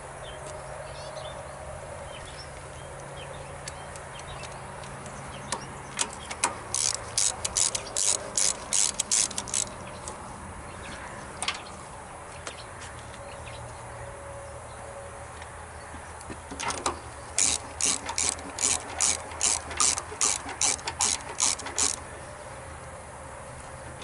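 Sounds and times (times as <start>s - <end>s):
ratchet wrench ratcheting: 6.0s - 9.8s, 16.5s - 22.1s.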